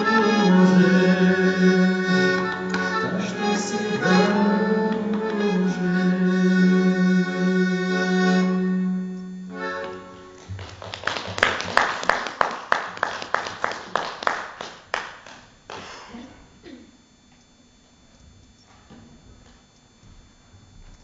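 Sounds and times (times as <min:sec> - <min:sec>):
accordion chord: 0:00.0 - 0:10.7
hand-clapping: 0:09.8 - 0:15.9.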